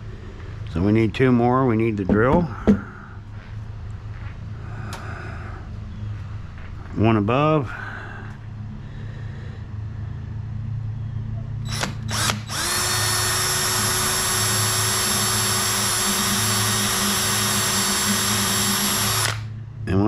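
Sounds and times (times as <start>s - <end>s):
steady low hum: 0.0s - 20.0s
cordless drill drilling into wood: 11.7s - 19.5s.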